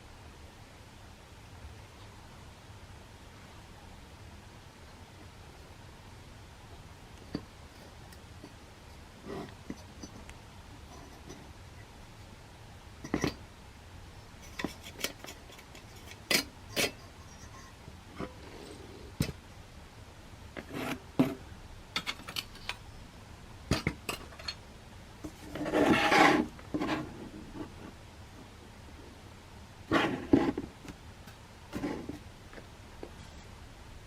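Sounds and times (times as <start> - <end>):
metal scraping rub: 25.5 - 27.2.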